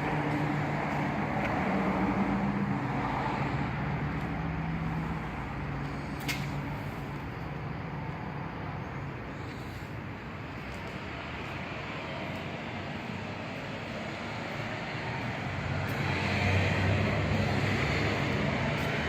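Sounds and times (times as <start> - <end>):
road noise: 0.0 - 19.0
vehicle engine hum: 0.0 - 19.0.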